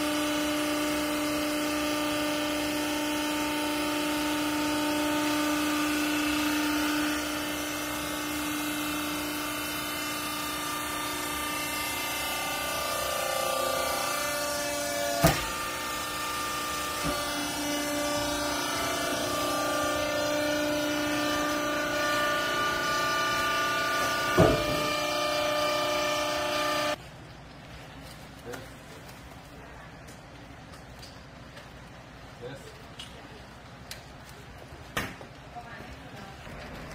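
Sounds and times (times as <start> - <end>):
baler machine humming: 0.0 - 27.0.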